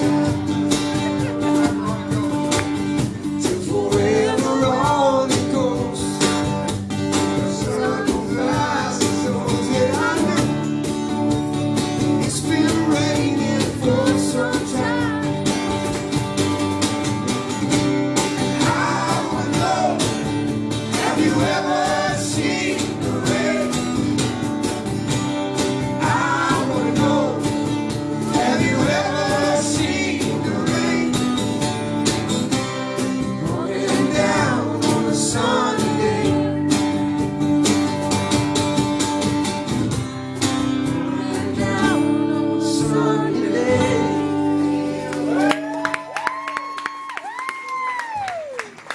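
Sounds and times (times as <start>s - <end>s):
strummed guitar: 0.0s - 46.0s
country-rock song with singing: 0.0s - 47.1s.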